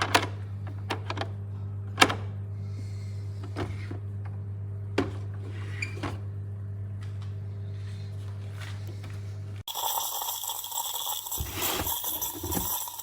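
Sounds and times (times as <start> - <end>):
steady low hum: 0.4 - 9.7.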